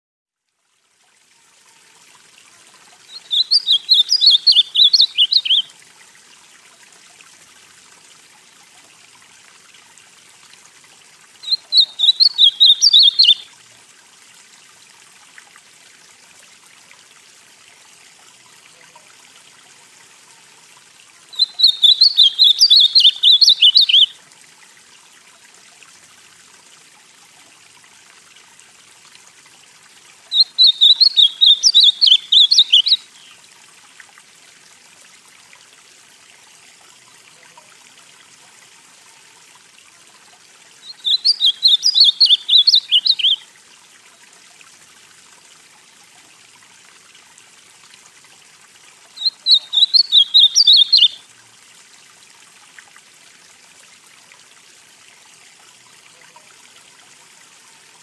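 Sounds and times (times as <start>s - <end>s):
faint steady hiss: 0.3s - 58.0s
bird singing warbled phrases: 3.1s - 5.7s, 11.4s - 13.5s, 21.3s - 24.2s, 30.3s - 33.4s, 40.8s - 43.4s, 49.2s - 51.2s.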